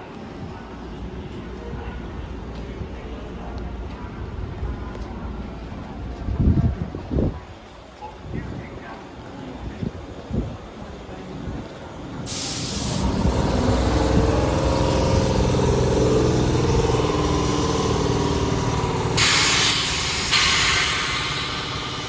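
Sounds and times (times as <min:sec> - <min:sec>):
electric train mechanical hum: 0:00.0 - 0:22.0
compressed-air hiss: 0:12.3 - 0:15.7, 0:19.2 - 0:22.0.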